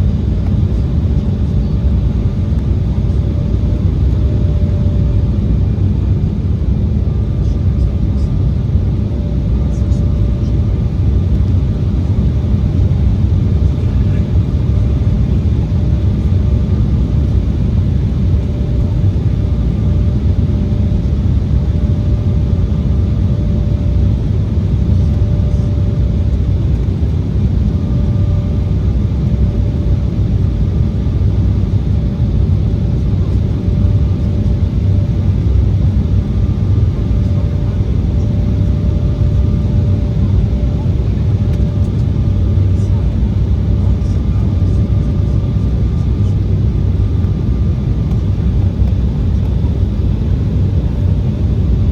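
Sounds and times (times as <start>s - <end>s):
airliner cabin rumble: 0.0s - 51.9s.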